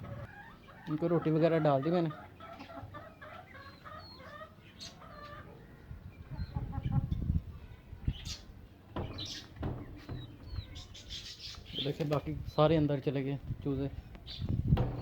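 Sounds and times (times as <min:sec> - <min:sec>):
chicks peeping: 0:00.0 - 0:12.3
chickens clucking: 0:00.0 - 0:12.4
low rumbling handling noise: 0:08.9 - 0:11.0, 0:14.4 - 0:15.0.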